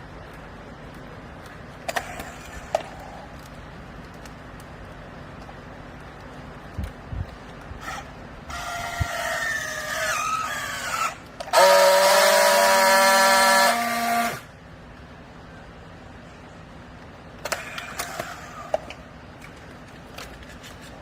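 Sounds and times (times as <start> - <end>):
baler machinery whining: 7.3 - 20.0.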